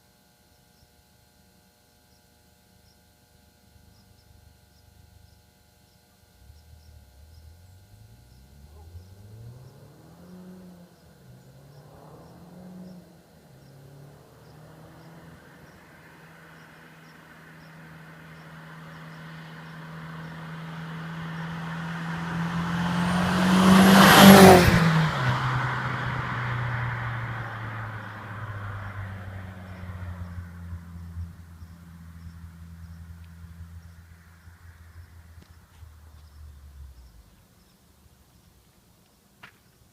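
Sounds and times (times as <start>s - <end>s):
car engine revving and passing: 6.4s - 37.7s.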